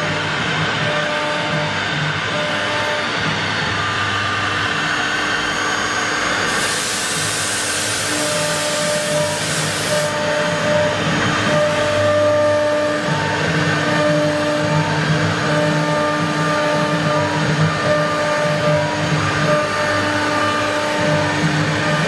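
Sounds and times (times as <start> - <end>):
machine noise: 0.0 - 22.0
router spindles whining: 0.0 - 22.0
harsh hiss: 6.5 - 10.1.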